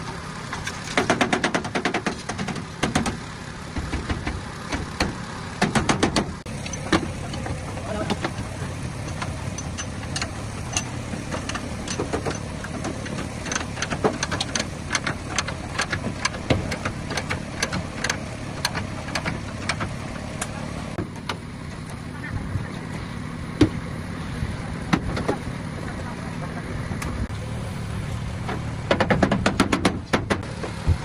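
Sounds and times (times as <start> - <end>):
sharp clicks and knocks: 0.0 - 3.2, 3.8 - 22.0, 28.4 - 31.0.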